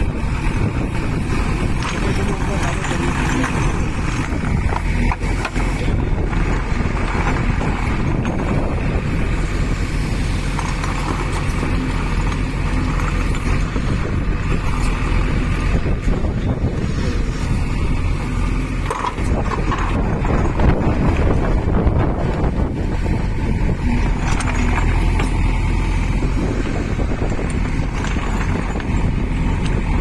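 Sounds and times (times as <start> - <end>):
backhoe diesel engine running: 0.0 - 30.0.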